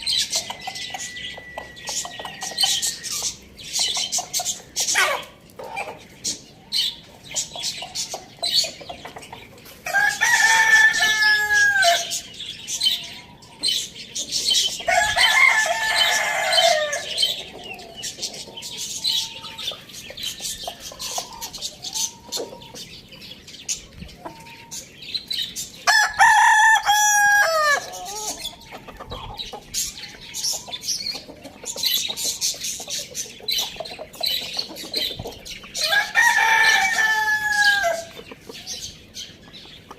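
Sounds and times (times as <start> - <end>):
high-pitched chirping: 0.0 - 4.7
chickens clucking: 0.0 - 39.9
rooster crowing: 9.9 - 12.2, 14.9 - 17.2, 25.8 - 28.1, 35.8 - 38.1.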